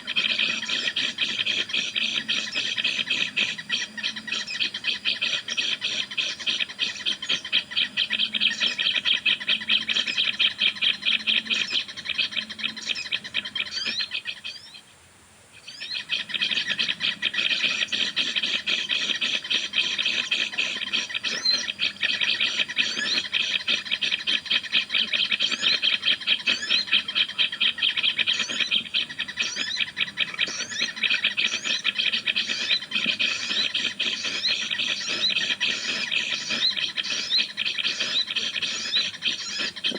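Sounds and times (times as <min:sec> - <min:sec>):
scratchy bird chatter: 0:16.0 - 0:39.9.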